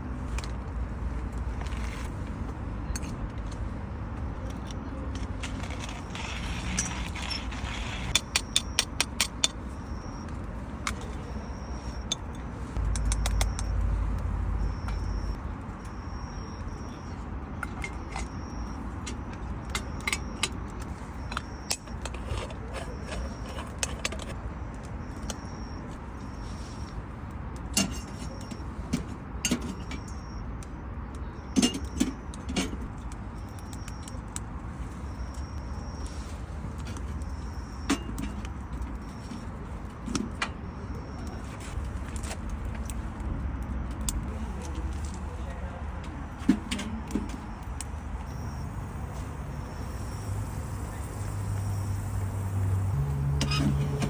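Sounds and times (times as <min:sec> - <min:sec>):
metal clinking and scraping: 0:04.6 - 0:09.6, 0:19.7 - 0:24.4
sharp clicks: 0:12.8 - 0:15.4.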